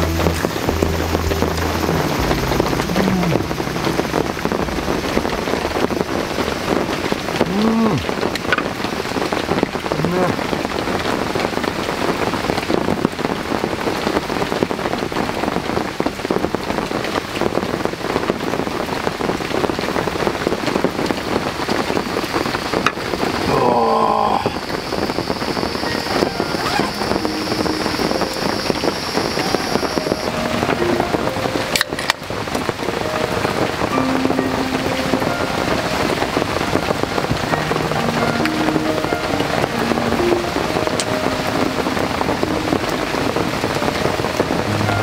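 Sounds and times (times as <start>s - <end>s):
heavy rain on a canvas tent: 0.0s - 45.0s.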